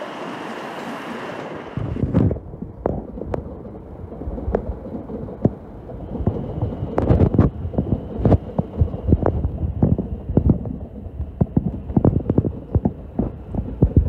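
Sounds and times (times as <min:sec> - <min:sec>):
faint high whine: 0:00.0 - 0:02.4.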